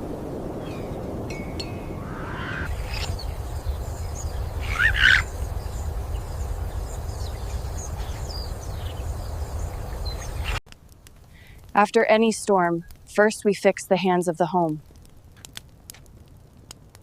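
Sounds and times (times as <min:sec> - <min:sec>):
low wind rumble: 0:00.0 - 0:10.6
rising bird call: 0:01.8 - 0:03.3, 0:04.5 - 0:05.3.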